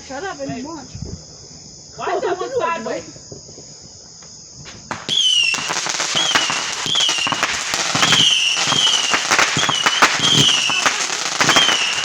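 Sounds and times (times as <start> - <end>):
falling firework whistles: 4.6 - 12.0
fireworks bangs and crackles: 4.6 - 12.0.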